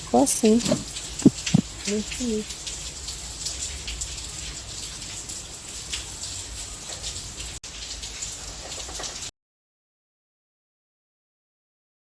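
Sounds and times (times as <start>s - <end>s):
steady rain falling: 0.0s - 9.3s.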